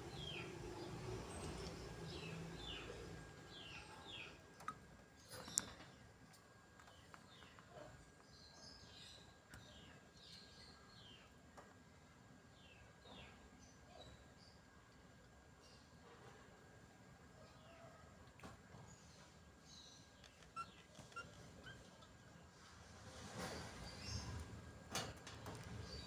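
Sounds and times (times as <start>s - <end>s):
budgerigars chirping: 0.0s - 4.3s.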